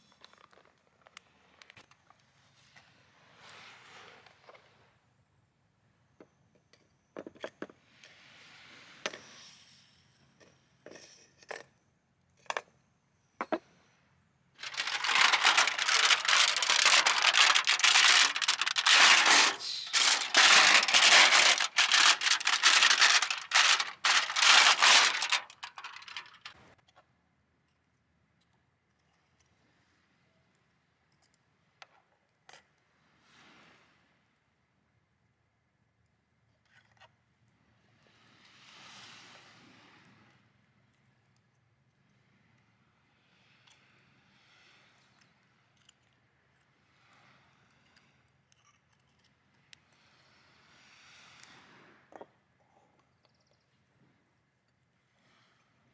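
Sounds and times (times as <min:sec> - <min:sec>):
bag crinkling and rustling: 0:14.6 - 0:26.5
gear clicks and knocks: 0:14.6 - 0:26.5.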